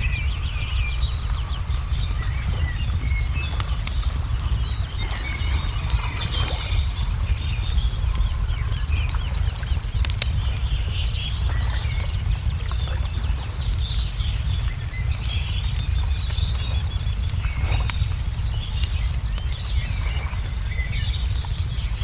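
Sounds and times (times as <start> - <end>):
small birds chirping: 0.0 - 22.0
wood fire crackling: 0.0 - 22.0.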